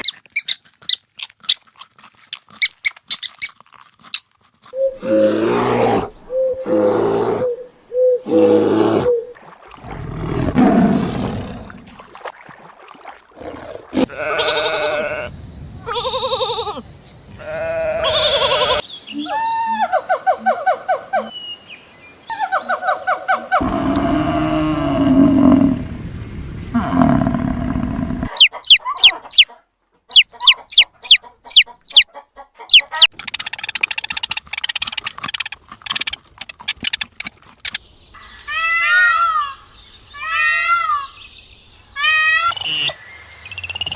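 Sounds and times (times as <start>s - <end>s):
high wavering bird calls: 6.0s - 9.4s, 32.6s - 33.1s, 38.2s - 43.9s
farm animal and fowl calls: 14.0s - 15.3s, 17.4s - 18.8s, 27.0s - 33.1s
rapid repeated sharp calls: 32.6s - 36.2s.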